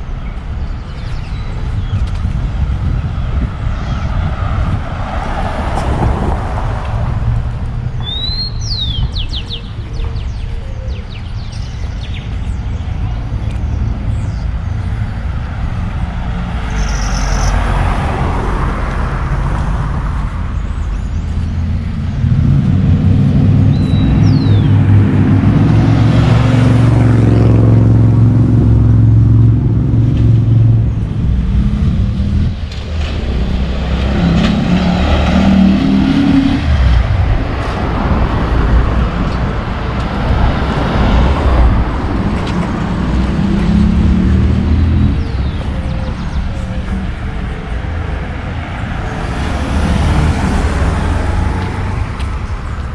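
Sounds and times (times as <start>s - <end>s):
vehicles passing: 0.0s - 52.9s
large engine low hum: 18.0s - 52.9s.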